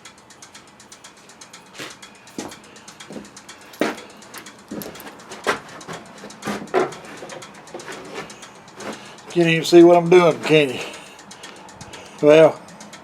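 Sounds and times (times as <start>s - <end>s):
ratchet wrench clicking: 0.1s - 13.0s
tools and parts knocking: 2.3s - 11.0s.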